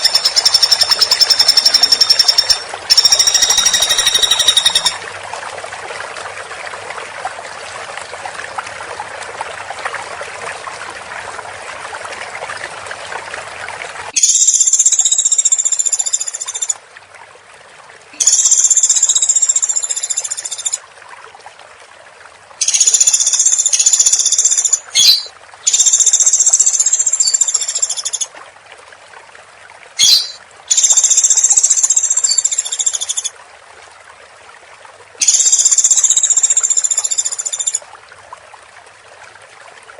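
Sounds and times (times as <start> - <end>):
woodpecker rattling calls: 0.0 - 5.0, 22.6 - 28.2, 30.0 - 33.3.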